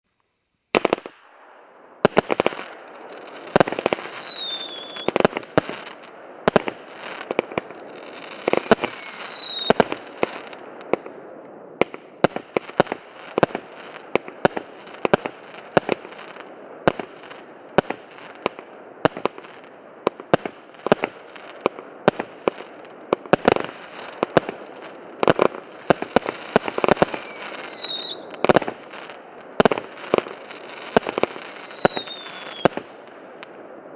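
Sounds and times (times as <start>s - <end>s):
firework crackle: 0.1s - 33.9s
falling whistle: 3.8s - 5.1s, 26.8s - 28.3s.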